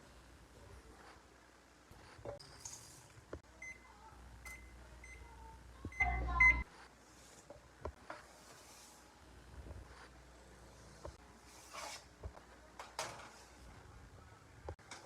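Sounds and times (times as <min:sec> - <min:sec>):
appliance control panel beeps: 0:03.6 - 0:05.3, 0:05.9 - 0:06.6.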